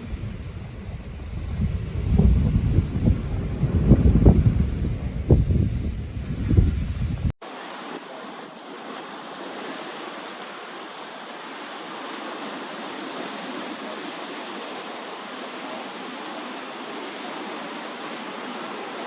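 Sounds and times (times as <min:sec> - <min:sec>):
wind rumble on microphone: 0:00.0 - 0:07.4
sea surf: 0:00.0 - 0:19.0.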